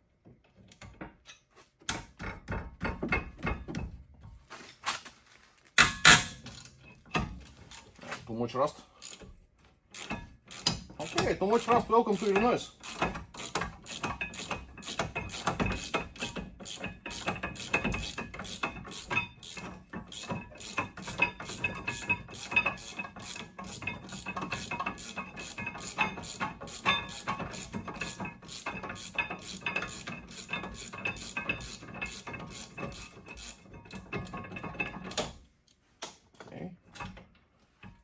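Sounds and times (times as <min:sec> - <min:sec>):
ratchet wrench clicking rapidly: 0:10.0 - 0:33.6.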